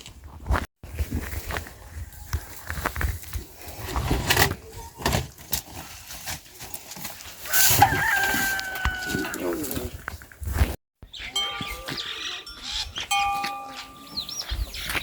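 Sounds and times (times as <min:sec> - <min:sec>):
farm animal calling: 0:11.1 - 0:15.0.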